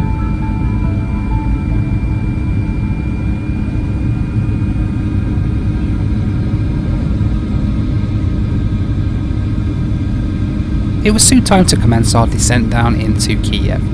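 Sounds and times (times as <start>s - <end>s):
faint high tones: 0.0s - 5.0s
aircraft cabin engine rumble: 0.0s - 13.9s.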